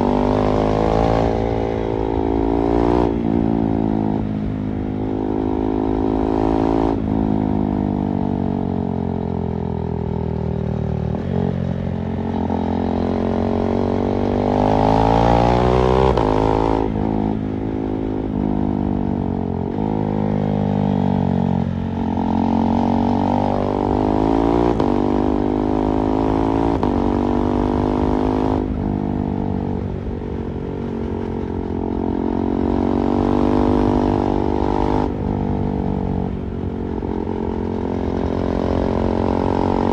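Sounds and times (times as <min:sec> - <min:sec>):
motorcycle engine revving: 0:10.9 - 0:39.9.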